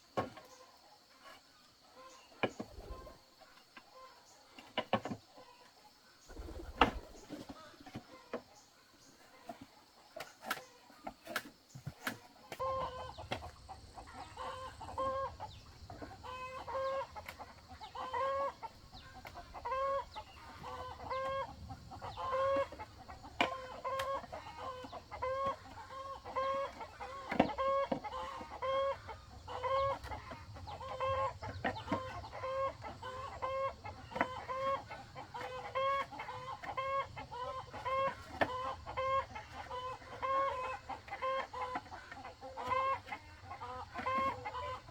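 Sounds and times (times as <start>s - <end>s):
chickens clucking: 0.0s - 44.9s.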